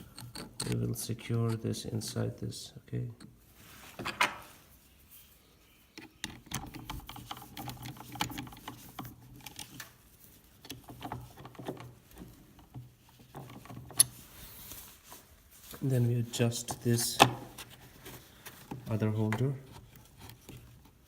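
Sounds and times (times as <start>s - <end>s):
wooden parts clicking and knocking: 0.0s - 1.6s, 6.0s - 14.2s.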